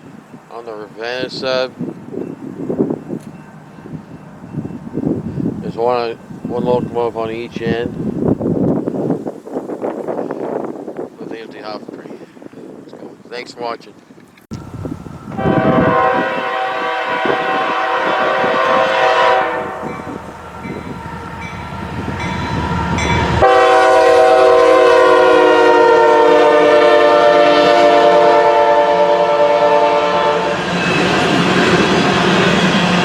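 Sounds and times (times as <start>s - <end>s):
passing train rumble: 0.0s - 13.0s, 14.5s - 33.0s
locomotive air horn: 15.3s - 22.2s, 22.8s - 30.7s.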